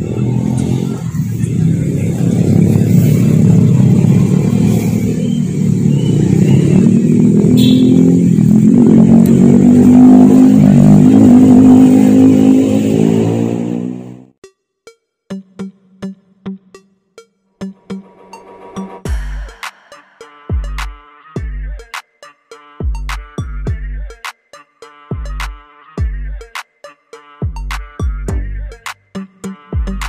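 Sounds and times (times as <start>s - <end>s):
vehicle engine running: 0.0s - 12.2s.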